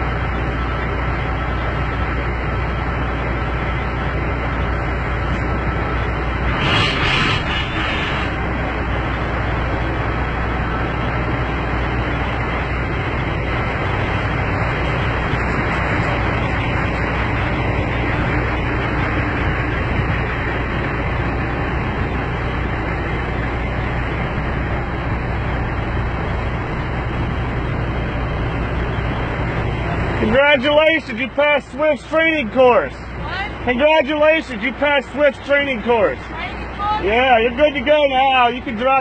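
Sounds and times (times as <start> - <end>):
truck diesel engine idling: 0.0 - 39.0.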